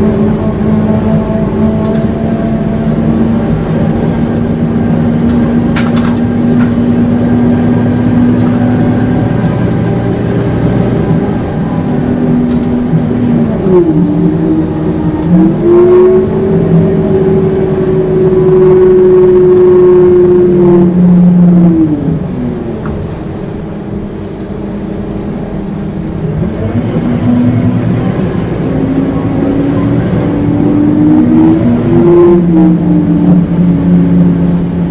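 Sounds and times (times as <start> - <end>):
bus diesel engine howling: 0.0 - 34.9.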